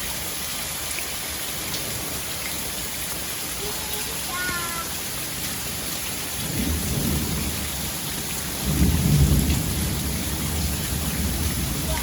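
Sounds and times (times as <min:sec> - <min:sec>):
steady rain: 0:00.0 - 0:12.0
thunder rumbling: 0:04.8 - 0:12.0.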